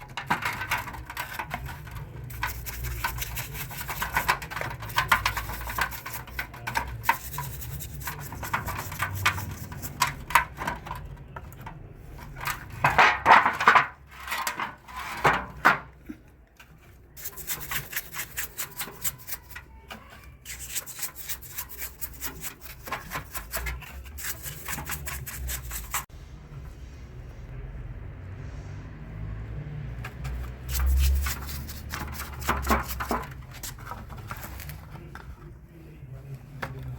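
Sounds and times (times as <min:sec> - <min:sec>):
metal rubbing: 0:00.0 - 0:10.6, 0:17.1 - 0:26.1, 0:30.2 - 0:34.7
metal parts and tools clicking: 0:00.0 - 0:12.9, 0:16.6 - 0:26.0.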